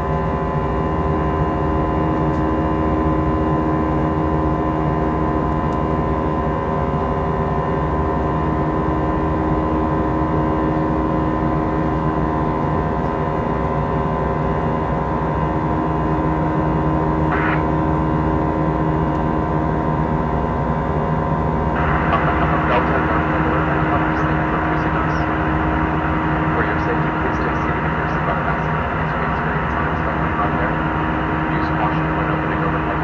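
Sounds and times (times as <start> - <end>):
jet engine drone in cabin: 0.0 - 33.0.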